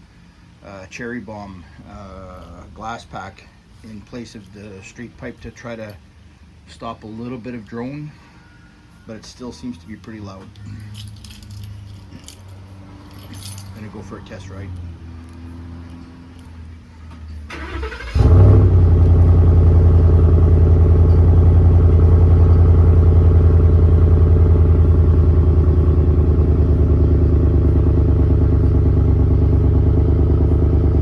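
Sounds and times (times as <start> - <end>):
engine cranking and starting: 17.4 - 21.4
loud v eight engine idling: 17.5 - 31.0.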